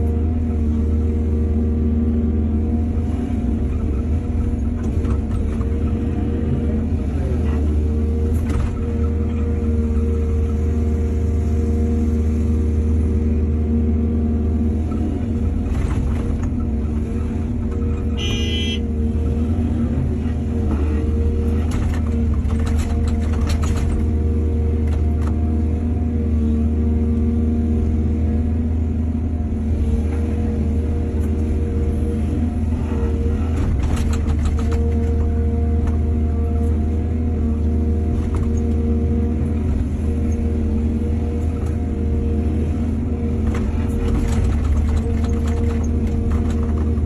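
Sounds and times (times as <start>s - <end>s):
excavator diesel engine running: 0.0s - 47.0s
machine clattering and scraping: 33.5s - 35.2s, 43.5s - 47.0s.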